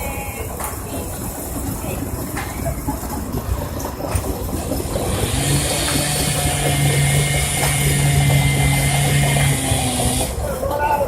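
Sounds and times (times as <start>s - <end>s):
sawmill mechanical rumble: 0.0s - 10.8s
steady hum: 3.2s - 10.6s.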